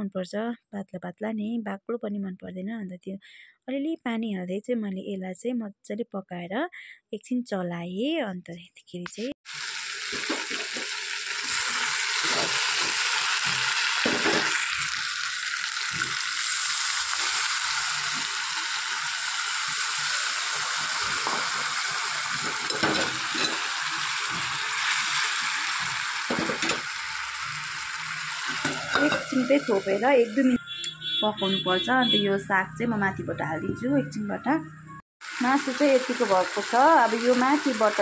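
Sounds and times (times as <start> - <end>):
curry sizzling in hot oil: 9.4 - 30.6, 35.2 - 38.0
ladle stirring and knocking in pan: 10.1 - 14.6, 22.3 - 25.2, 25.8 - 26.9, 28.4 - 29.5.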